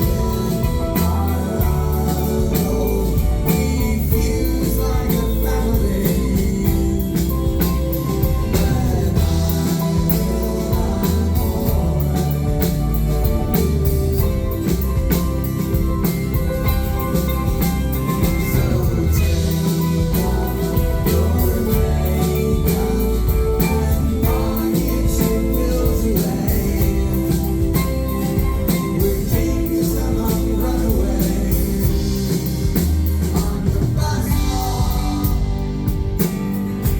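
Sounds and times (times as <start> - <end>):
live rock band playing: 0.0 - 36.9.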